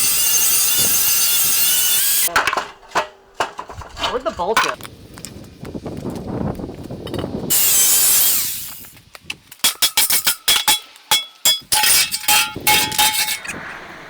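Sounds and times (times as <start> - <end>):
metallic strikes and clinks: 9.7 - 13.6.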